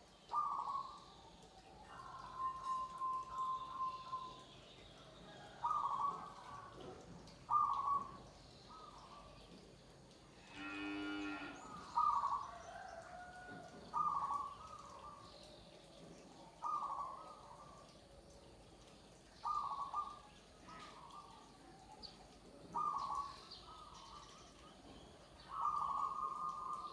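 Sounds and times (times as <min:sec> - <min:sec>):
doves cooing: 0:05.3 - 0:09.4, 0:10.6 - 0:15.3, 0:22.7 - 0:24.3, 0:25.5 - 0:26.9.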